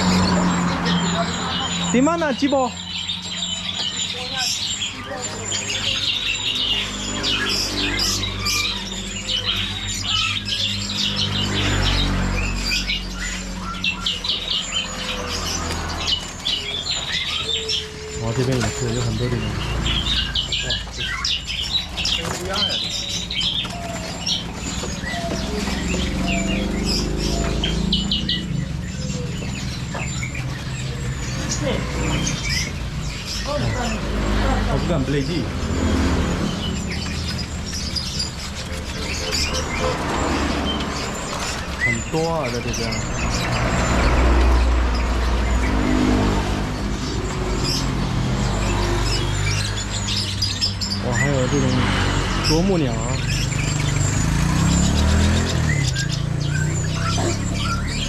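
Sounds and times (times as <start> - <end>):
passing vehicle engine: 0.0 - 58.0
songbirds chirping: 0.0 - 58.0.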